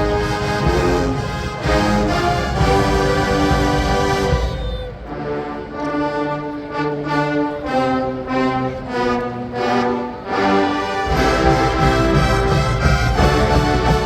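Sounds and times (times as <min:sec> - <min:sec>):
low drums: 0:00.0 - 0:05.3, 0:11.0 - 0:14.0
brass playing held chords: 0:00.0 - 0:14.0.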